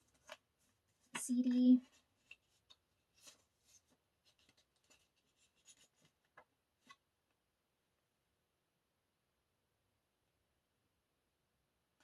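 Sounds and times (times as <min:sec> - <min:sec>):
packaging and paper rustling: 0:00.0 - 0:07.0.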